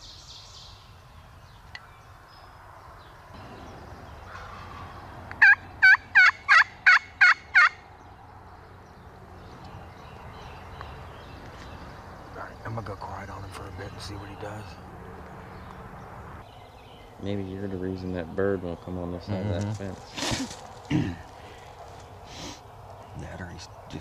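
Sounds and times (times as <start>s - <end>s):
turkey call yelps: 4.3s - 7.8s.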